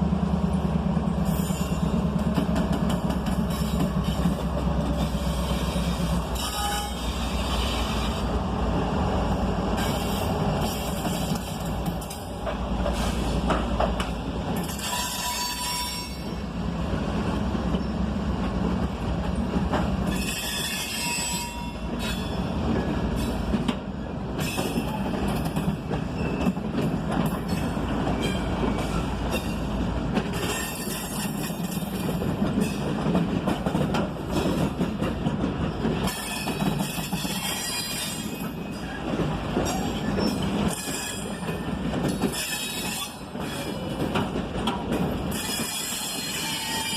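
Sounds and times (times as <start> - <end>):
train wheels rumbling on rail: 0.0 - 46.9
train wheels squealing: 1.2 - 2.0, 5.0 - 8.2, 14.6 - 16.4, 20.1 - 23.4, 24.4 - 26.7, 27.3 - 29.7, 36.0 - 44.0, 45.3 - 46.9.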